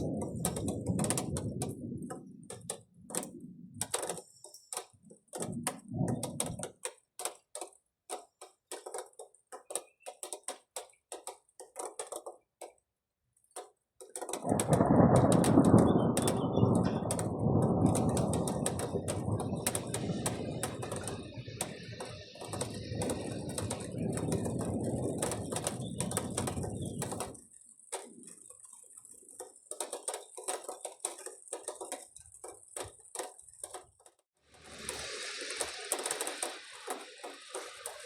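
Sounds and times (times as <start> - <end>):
thunder rumbling: 0.0 - 4.0, 5.4 - 6.6, 14.4 - 27.4
drops ticking on a surface: 0.0 - 12.8, 13.4 - 34.2.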